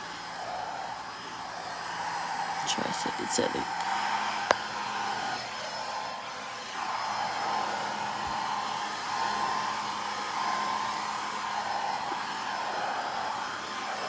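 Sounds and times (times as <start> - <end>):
motor whine: 0.0 - 14.0
pet dryer blowing air: 0.0 - 14.0.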